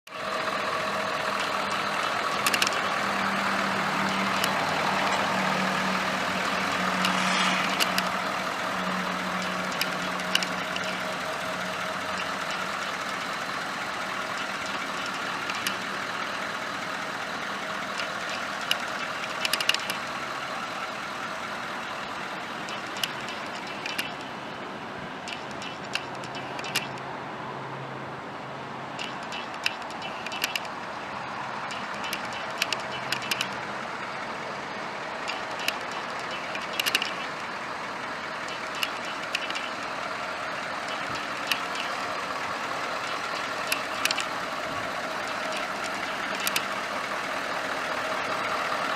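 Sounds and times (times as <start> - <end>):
diesel engine idling: 0.1 - 48.9
sharp clicks: 2.2 - 3.4, 4.0 - 11.2, 14.2 - 15.9, 17.9 - 20.0, 22.6 - 24.3, 25.2 - 27.1, 29.0 - 30.8, 31.6 - 33.6, 35.2 - 37.5, 38.4 - 40.0, 40.6 - 42.1, 43.0 - 44.5, 45.2 - 46.8.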